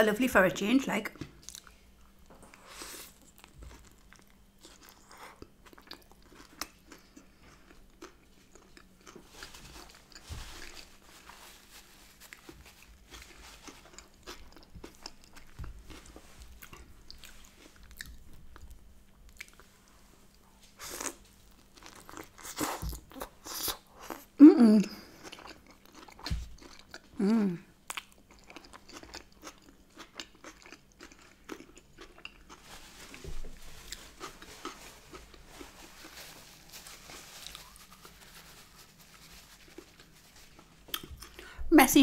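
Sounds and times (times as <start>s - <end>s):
person chewing: 1.4s - 1.8s, 2.5s - 10.9s, 12.2s - 19.7s, 20.3s - 27.3s, 27.9s - 32.6s, 33.9s - 35.5s, 39.7s - 41.5s.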